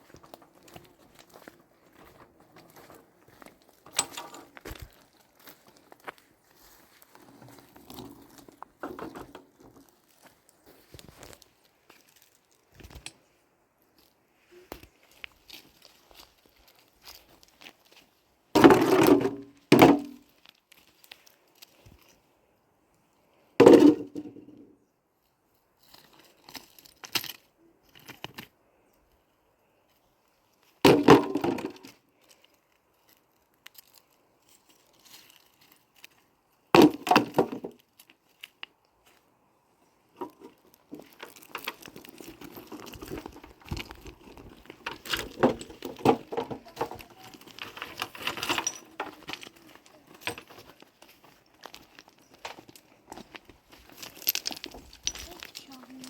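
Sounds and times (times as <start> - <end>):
rustling and clattering: 0.0 - 13.3, 40.1 - 56.0.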